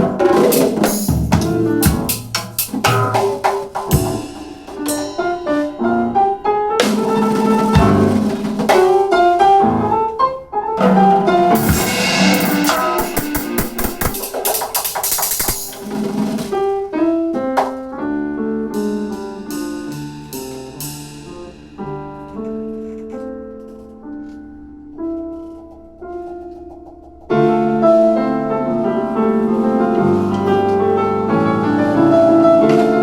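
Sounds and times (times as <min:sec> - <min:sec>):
drum kit playing: 0:00.0 - 0:09.6, 0:10.8 - 0:16.9, 0:18.6 - 0:22.3
piano playing: 0:00.0 - 0:33.0
cymbals washing: 0:11.5 - 0:16.0, 0:18.8 - 0:21.9.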